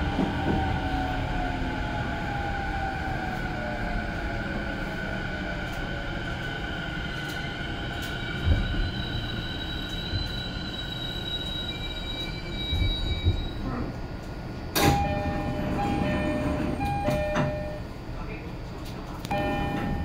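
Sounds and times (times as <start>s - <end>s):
train running rumble: 12.6s - 20.0s.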